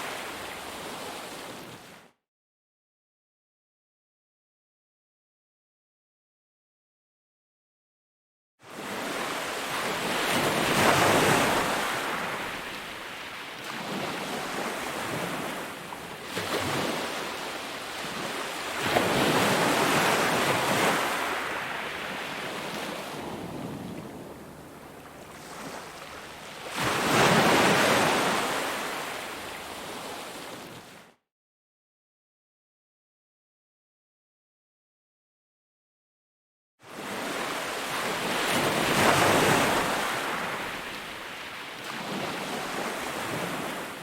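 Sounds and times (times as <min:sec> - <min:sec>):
ocean waves breaking: 0:08.7 - 0:30.9, 0:36.9 - 0:44.0.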